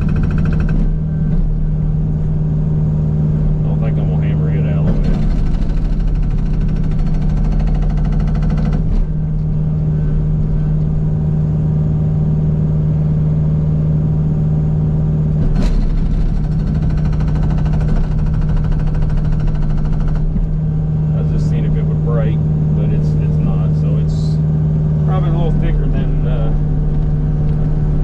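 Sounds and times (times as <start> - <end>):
sharp knocks: 0.0 - 1.4, 4.8 - 9.1, 15.4 - 20.5
excavator diesel engine running: 0.0 - 28.0.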